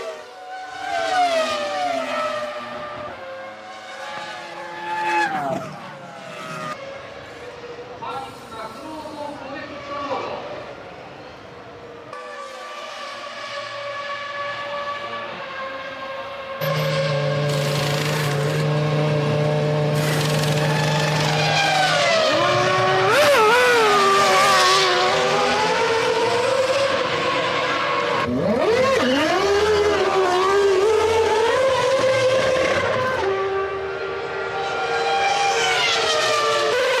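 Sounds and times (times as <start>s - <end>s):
racing car engines at high revs: 0.0s - 8.8s, 9.6s - 37.0s.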